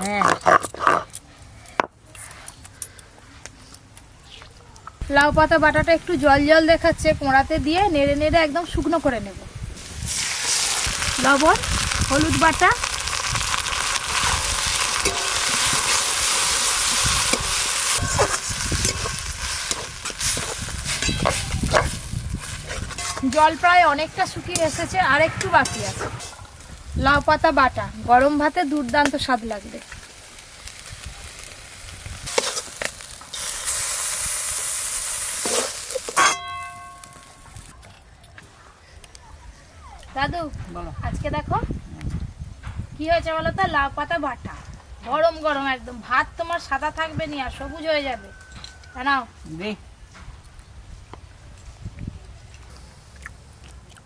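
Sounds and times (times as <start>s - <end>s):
paste sizzling in a pan: 9.8s - 36.3s
stirring and scraping in pan: 13.1s - 26.8s, 28.0s - 37.7s
metal utensil clanging on metal: 15.0s - 16.0s, 20.9s - 21.9s, 22.9s - 23.6s, 35.4s - 37.4s.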